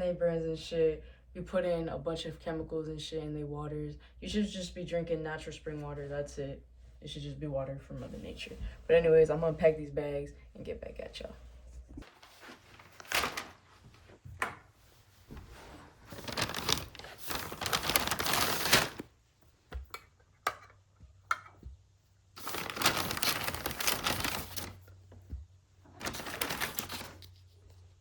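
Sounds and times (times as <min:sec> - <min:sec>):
bags rustling and crinkling: 0:12.0 - 0:14.2, 0:15.0 - 0:19.1, 0:22.4 - 0:24.9, 0:25.9 - 0:27.2.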